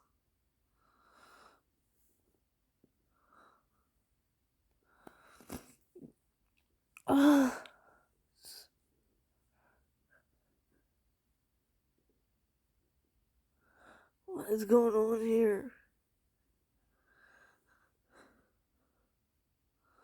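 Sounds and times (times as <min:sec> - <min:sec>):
woman wheezing: 0:07.1 - 0:07.7.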